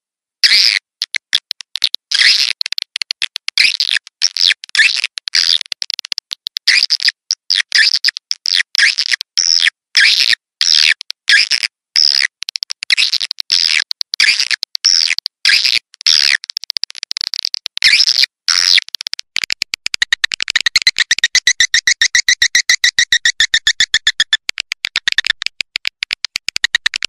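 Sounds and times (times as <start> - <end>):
swiftlets twittering: 19.5 - 25.3.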